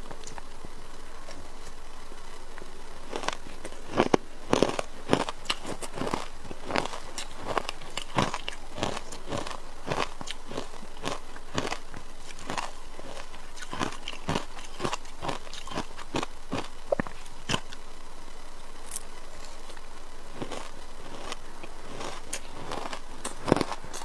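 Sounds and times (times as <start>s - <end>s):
ice crunched between teeth: 3.1s - 16.7s, 20.4s - 24.0s.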